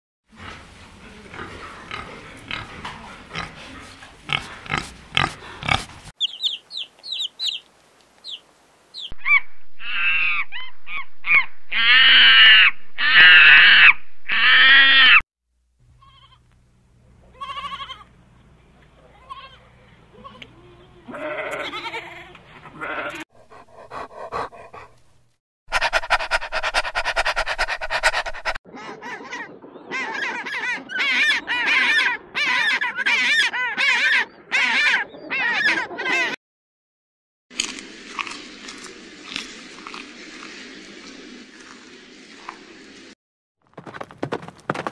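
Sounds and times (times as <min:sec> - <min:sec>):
pig grunts: 0:00.4 - 0:06.0
goats bleating: 0:17.3 - 0:18.1, 0:19.1 - 0:23.2.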